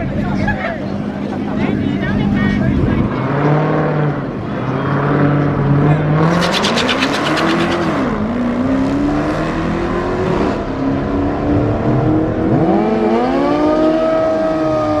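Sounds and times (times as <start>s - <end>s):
car engines revving: 6.0s - 14.6s.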